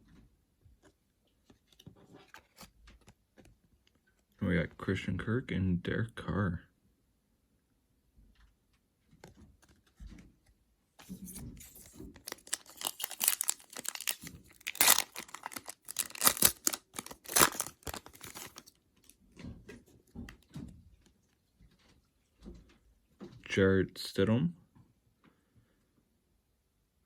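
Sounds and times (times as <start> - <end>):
foil wrapper tearing and crinkling: 11.0 - 18.7.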